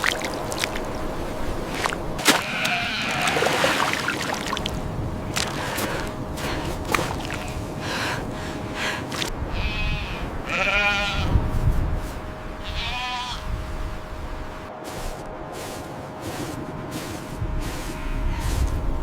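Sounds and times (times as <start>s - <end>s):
animal bleating: 2.2s - 3.5s, 9.5s - 11.5s, 12.6s - 13.5s
steady rushing background: 3.8s - 9.5s, 13.5s - 19.0s.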